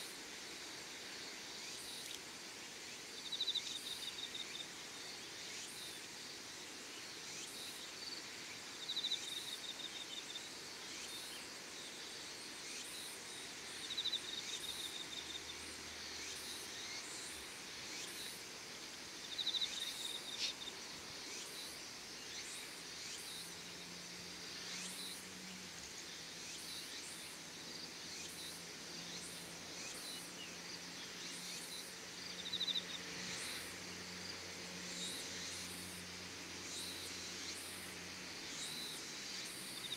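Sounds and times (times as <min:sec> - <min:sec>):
faint ticks: 0:02.0 - 0:02.3.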